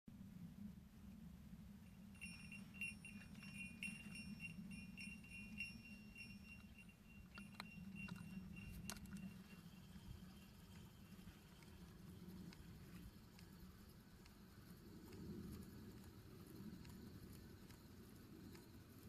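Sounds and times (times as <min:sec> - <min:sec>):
bite alarm bell jingling: 0:01.9 - 0:14.6
sharp clicks: 0:06.4 - 0:19.0.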